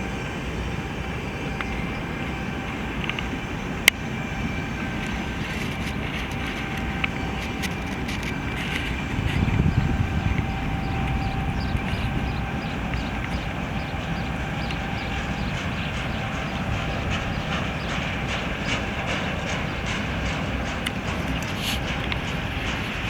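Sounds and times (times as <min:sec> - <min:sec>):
freight train rumbling past: 0:00.0 - 0:23.0
wheels clicking over rail joints: 0:04.9 - 0:23.0.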